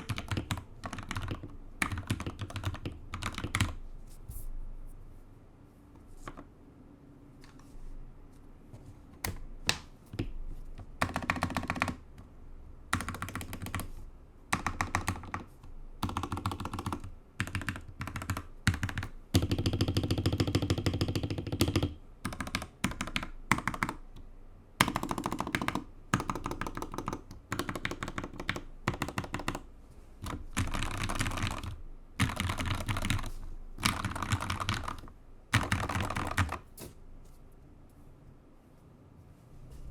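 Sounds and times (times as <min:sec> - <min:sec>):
mechanical keyboard typing: 0:00.0 - 0:03.8, 0:10.9 - 0:12.1, 0:12.9 - 0:24.2, 0:24.8 - 0:36.7.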